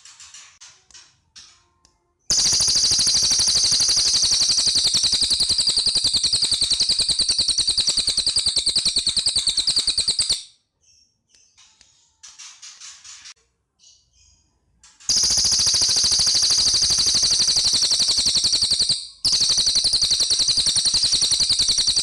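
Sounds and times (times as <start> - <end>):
soft high bird chirps: 1.6 - 13.2, 13.8 - 22.0
songbird rapid rattling trill: 2.3 - 10.5, 15.1 - 22.0.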